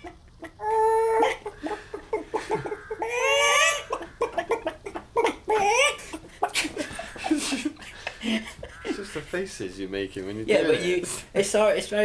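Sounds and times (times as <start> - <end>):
person imitating chicken clucks: 0.0 - 6.3
person imitating chicken squawks: 2.5 - 4.4, 5.2 - 6.1.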